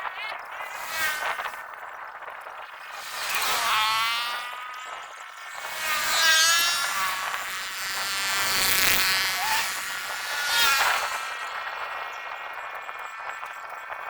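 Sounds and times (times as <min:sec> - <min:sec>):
small motor buzzing: 0:00.3 - 0:13.7.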